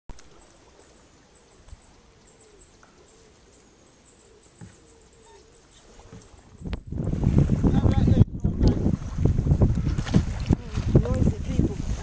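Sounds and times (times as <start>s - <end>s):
small birds chirping: 0.2s - 6.9s
pigeon cooing: 1.4s - 6.4s.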